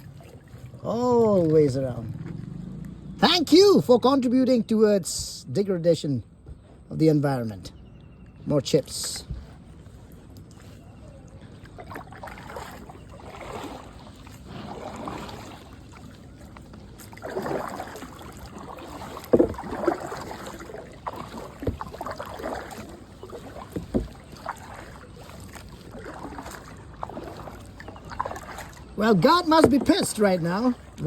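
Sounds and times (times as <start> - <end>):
kayak paddle swishing through water: 0.0 - 3.9, 8.9 - 31.0
sharp knocks: 19.2 - 19.9.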